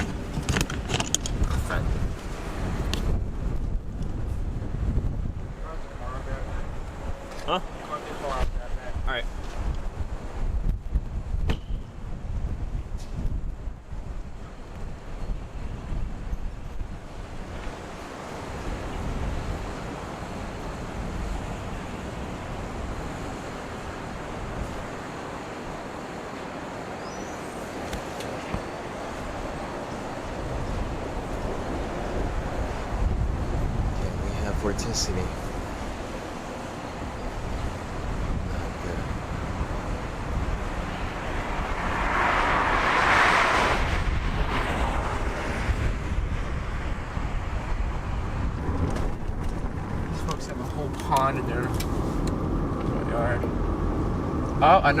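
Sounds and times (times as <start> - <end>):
rushing wind and road noise: 0.0 - 55.0
wind buffeting microphone: 0.0 - 55.0
car driving: 28.4 - 55.0.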